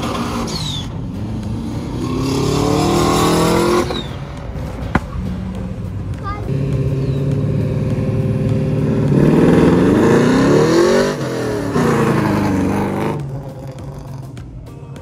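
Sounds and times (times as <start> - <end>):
car engine revving hard: 0.0 - 4.2, 6.5 - 14.2.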